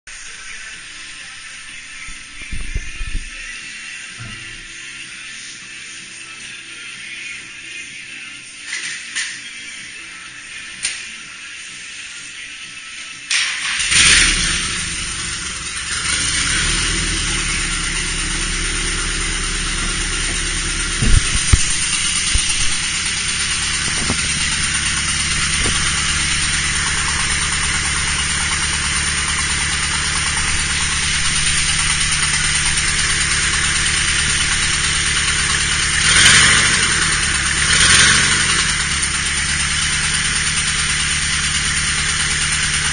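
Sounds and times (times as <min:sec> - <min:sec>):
car engine idling: 0:13.4 - 0:42.9
sharp engine knocks: 0:20.2 - 0:27.1.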